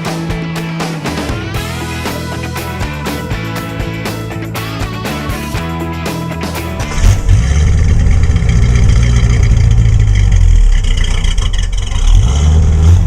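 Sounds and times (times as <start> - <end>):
rock music: 0.0 - 11.1
car engine rumbling: 6.6 - 13.0.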